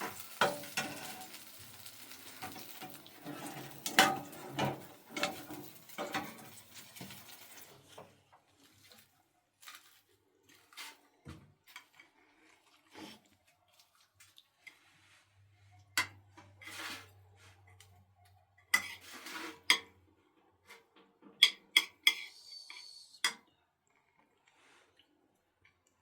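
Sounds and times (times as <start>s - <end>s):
short scraping noises: 16.6s - 17.2s.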